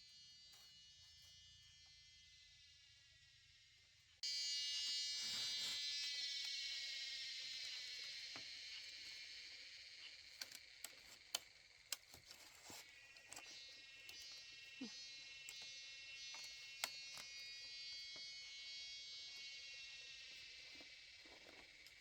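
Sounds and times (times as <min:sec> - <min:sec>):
cicada buzzing drone: 0:04.3 - 0:11.8.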